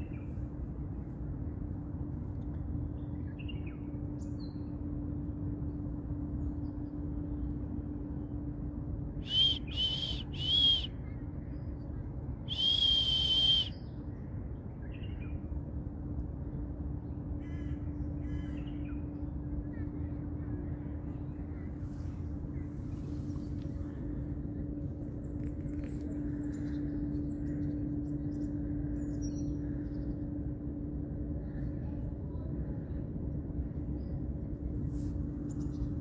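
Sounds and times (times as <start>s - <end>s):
low hum and rumble: 0.0s - 36.0s.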